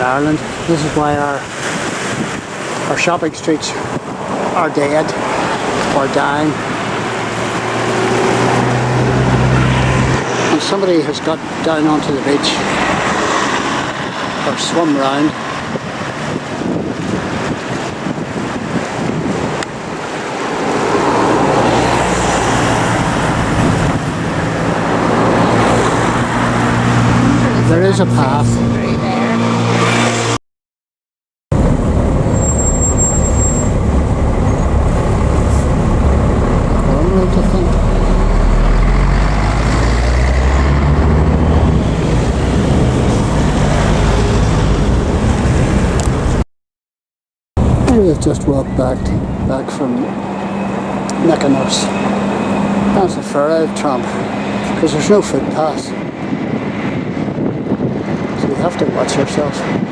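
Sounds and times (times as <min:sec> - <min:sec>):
traffic tyre and engine noise: 0:00.0 - 0:30.4, 0:31.5 - 0:46.4, 0:47.6 - 0:59.9
low engine hum: 0:31.5 - 0:46.4.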